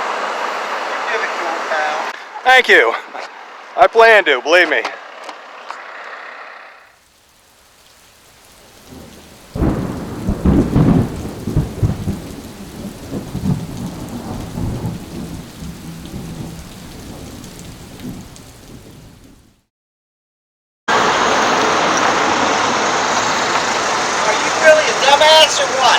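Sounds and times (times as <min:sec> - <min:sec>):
steady rain: 0:00.0 - 0:03.8, 0:06.9 - 0:19.7, 0:20.9 - 0:25.9
thunder clap rumbling: 0:08.5 - 0:19.6.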